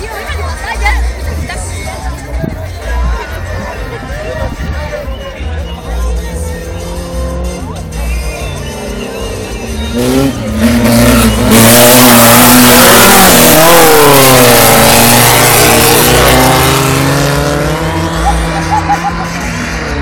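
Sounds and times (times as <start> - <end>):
race car engine at high revs: 6.1 - 20.0.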